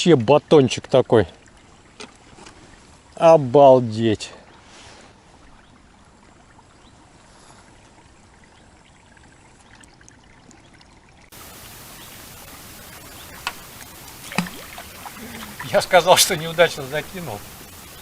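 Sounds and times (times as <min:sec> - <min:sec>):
flowing river water: 0:00.0 - 0:18.0.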